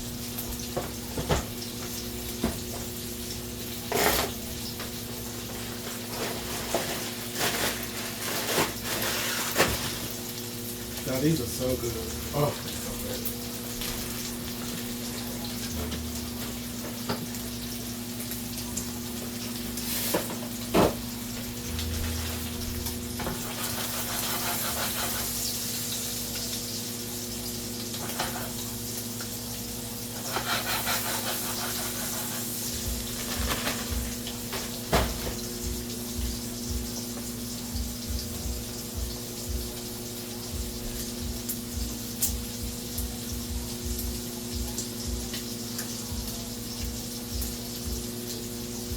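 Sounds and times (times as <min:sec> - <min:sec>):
electrical hum: 0:00.0 - 0:48.9
utensils clicking on cookware: 0:23.2 - 0:25.5, 0:30.2 - 0:32.5.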